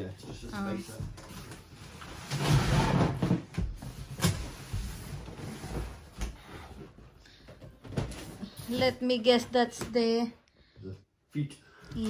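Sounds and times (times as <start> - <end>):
cardboard rustling and scraping: 1.2 - 6.2.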